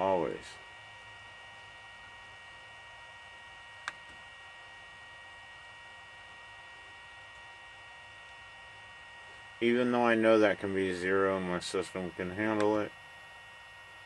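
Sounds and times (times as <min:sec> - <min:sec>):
low electrical hum: 0:00.0 - 0:14.0
sharp click: 0:03.8 - 0:04.1, 0:12.4 - 0:13.0.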